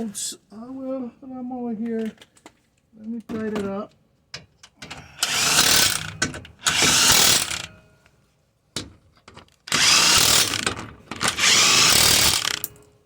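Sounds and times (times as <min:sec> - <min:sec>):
power tool tightening bolts: 0:04.8 - 0:07.8, 0:09.7 - 0:12.8.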